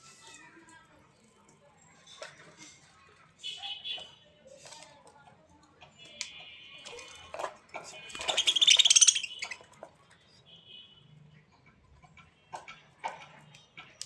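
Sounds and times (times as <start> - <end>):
bird calling: 8.2 - 9.6.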